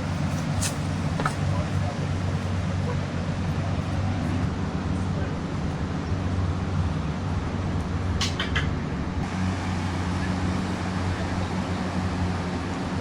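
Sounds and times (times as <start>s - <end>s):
engine humming: 0.0s - 13.0s
outdoor noise: 0.0s - 13.0s.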